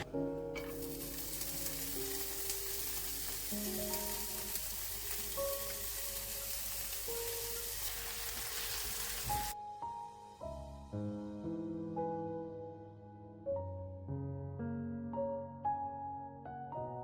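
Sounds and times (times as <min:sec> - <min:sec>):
soft piano music: 0:00.0 - 0:17.0
food sizzling in a pan: 0:00.6 - 0:09.6.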